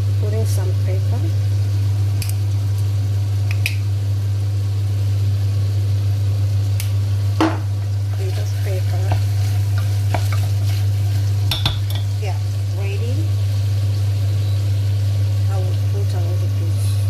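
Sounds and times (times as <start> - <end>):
loud steady low hum: 0.0 - 17.0
food sizzling in butter: 7.0 - 17.0
utensil scraping frying pan: 7.8 - 12.2.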